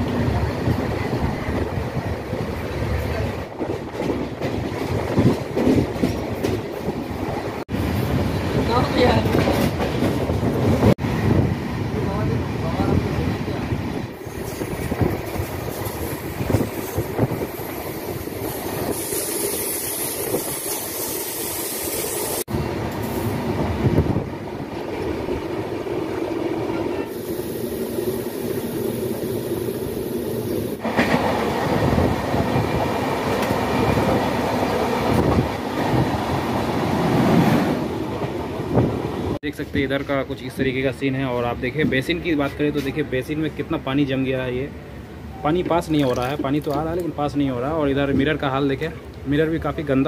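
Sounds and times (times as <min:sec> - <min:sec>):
wind: 0:00.0 - 0:50.0
train wheels clickety-clack: 0:02.6 - 0:11.0, 0:30.8 - 0:40.6.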